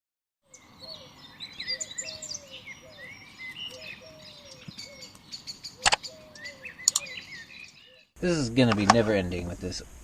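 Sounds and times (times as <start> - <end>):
birds chirping and warbling: 0.4 - 9.8
low falling bird call: 0.5 - 8.2.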